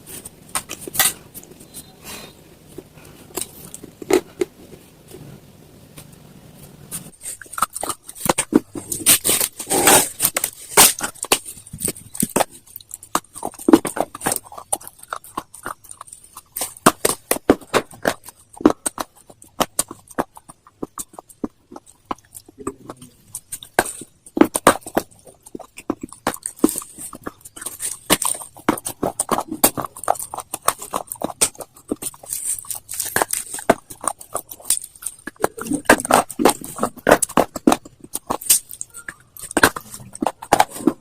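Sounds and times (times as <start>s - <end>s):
crunching hard brittle food: 0.0s - 5.2s, 6.9s - 41.0s.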